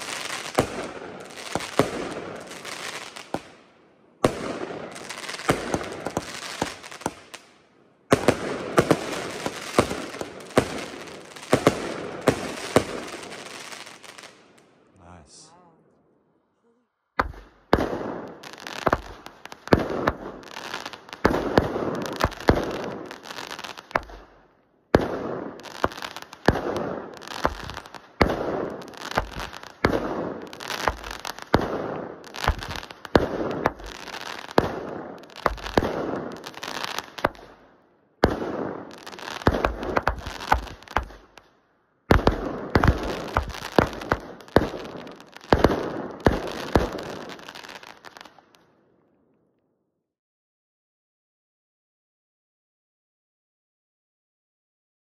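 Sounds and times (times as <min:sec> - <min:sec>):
firework cake bangs and crackling: 0:00.0 - 0:03.6, 0:04.2 - 0:07.5, 0:08.1 - 0:14.4, 0:17.2 - 0:37.6, 0:38.2 - 0:41.5, 0:42.1 - 0:48.4.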